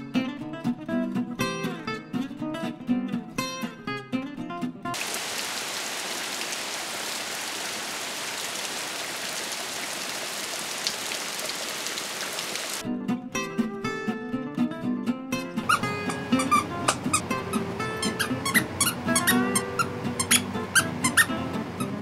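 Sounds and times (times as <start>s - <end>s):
acoustic guitar music: 0.0s - 5.0s, 12.8s - 22.0s
rain falling: 5.0s - 12.8s.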